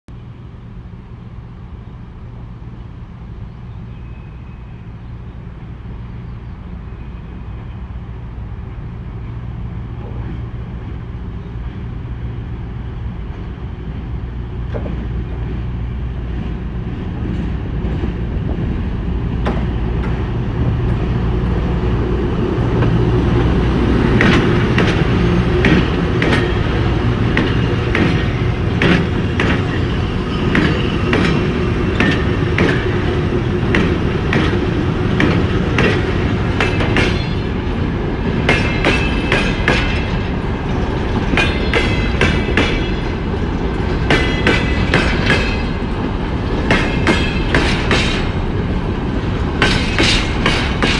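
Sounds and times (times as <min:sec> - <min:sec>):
locomotive low hum: 0:00.2 - 0:50.9
wheels clattering over rail joints: 0:24.1 - 0:48.4, 0:49.2 - 0:50.9.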